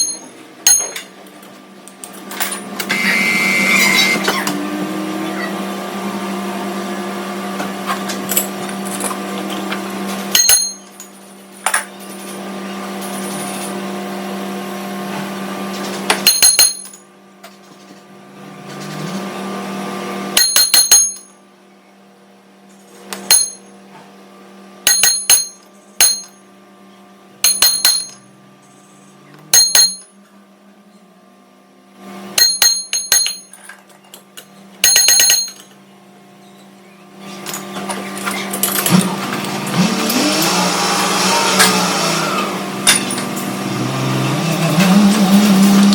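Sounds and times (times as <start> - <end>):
ringing metal clinks: 0.0 - 1.1, 10.3 - 12.2, 16.2 - 17.1, 20.4 - 21.4, 23.2 - 23.8, 24.9 - 26.5, 27.4 - 28.4, 29.5 - 30.2, 32.4 - 33.8, 34.8 - 35.8
noisy cutting sound: 2.7 - 10.2, 38.1 - 45.9
metal lathe humming: 39.0 - 45.9.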